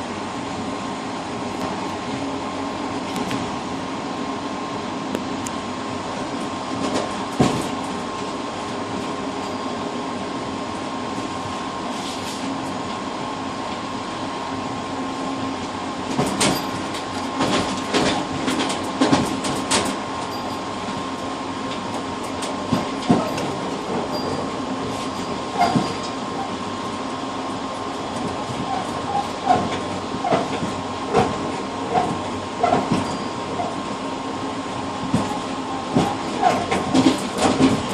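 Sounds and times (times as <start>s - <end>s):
train rumble and hum: 0.0s - 37.9s
wheels knocking on track: 22.2s - 26.2s, 28.2s - 33.8s, 35.0s - 37.9s.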